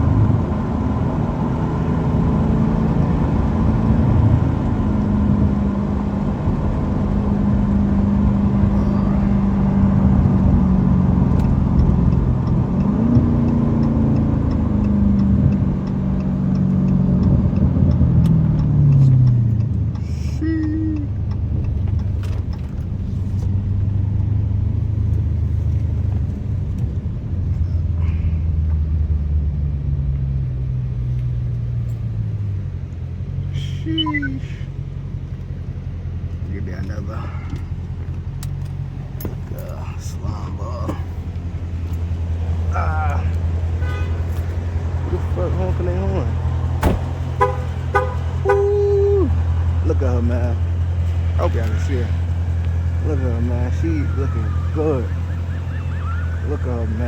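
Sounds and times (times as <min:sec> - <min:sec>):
car exhaust drone: 0:00.0 - 0:57.0.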